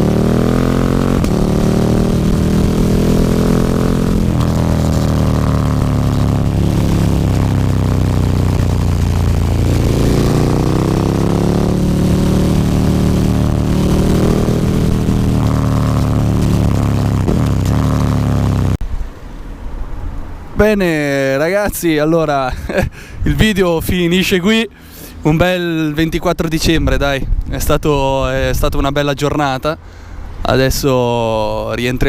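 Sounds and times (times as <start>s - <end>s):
motorcycle engine revving: 0.0s - 18.8s.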